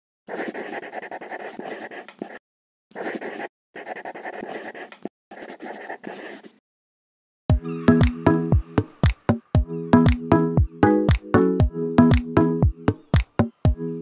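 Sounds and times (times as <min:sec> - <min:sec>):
felt-tip marker scratching: 0:00.3 - 0:06.6.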